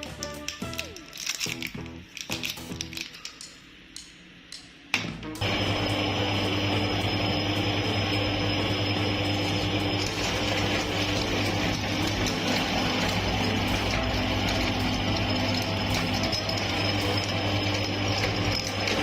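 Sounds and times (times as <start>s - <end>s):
electric meat grinder running: 5.4s - 19.0s.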